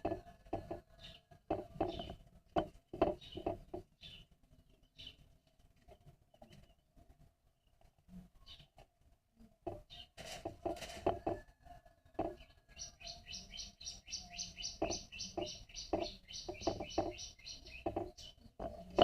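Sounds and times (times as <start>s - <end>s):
small bird chirping: 0.6s - 2.2s, 2.8s - 5.4s, 8.1s - 10.4s, 12.1s - 19.0s
light knocks and clicks: 9.6s - 11.4s, 14.7s - 19.0s.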